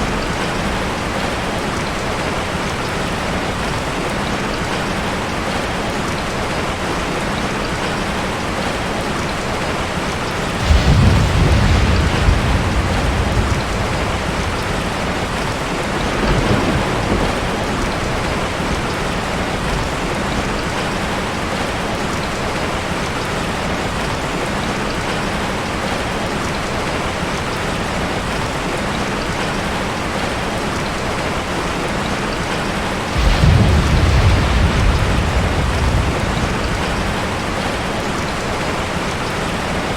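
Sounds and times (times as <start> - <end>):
heavy rain falling: 0.0 - 39.9
thunder rolling: 10.4 - 21.1, 33.1 - 39.8.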